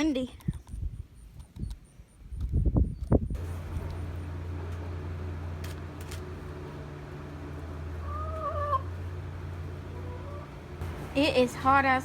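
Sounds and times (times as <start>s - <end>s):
low hum: 3.4s - 12.0s
chicken call: 8.0s - 8.9s, 9.9s - 10.6s.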